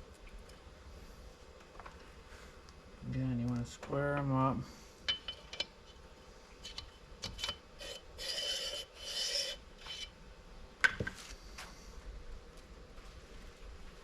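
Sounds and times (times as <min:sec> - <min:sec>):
metal-on-metal scrapes: 0:06.6 - 0:10.2.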